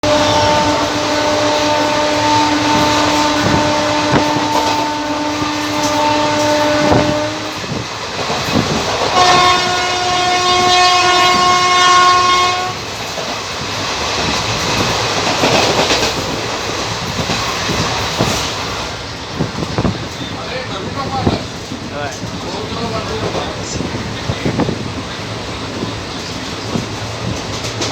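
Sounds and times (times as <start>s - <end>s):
higher-pitched train horn: 0.0s - 7.8s, 9.0s - 12.9s
locomotive horn blast: 0.0s - 7.8s, 9.0s - 12.8s
train rumble: 0.0s - 27.9s
wheels clattering over rail joints: 12.8s - 27.9s.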